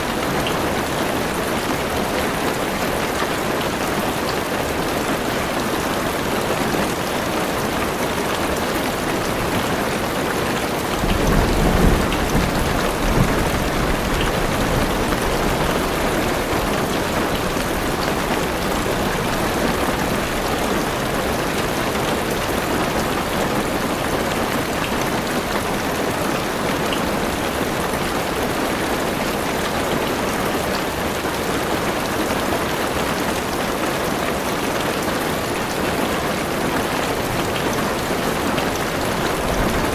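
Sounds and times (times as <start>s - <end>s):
heavy rain on car roof: 0.0s - 39.9s
thunder rumble: 10.9s - 19.3s, 39.1s - 39.9s.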